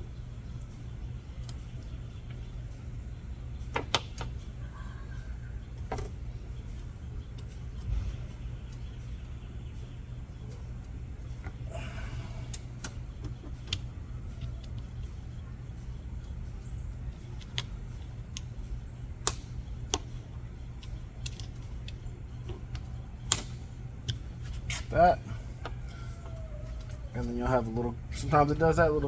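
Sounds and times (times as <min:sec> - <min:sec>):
steady low hum: 0:00.0 - 0:29.0
small metallic clicks: 0:12.3 - 0:24.9.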